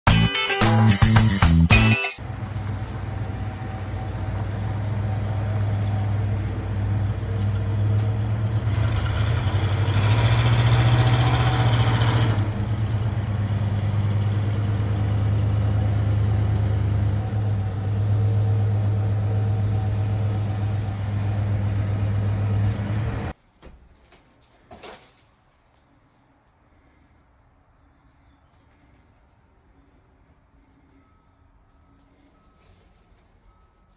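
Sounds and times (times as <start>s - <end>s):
engine running: 2.2s - 23.4s.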